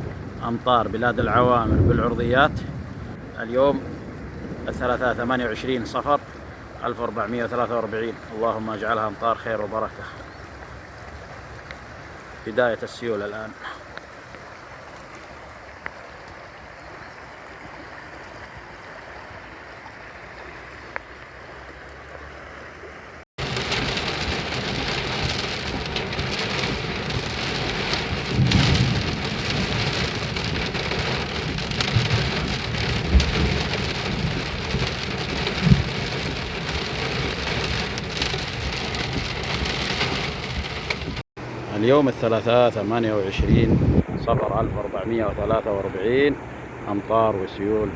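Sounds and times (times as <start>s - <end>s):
heavy rain pouring: 0.0s - 14.0s, 23.4s - 41.6s
rainwater runoff rushing: 0.0s - 47.9s.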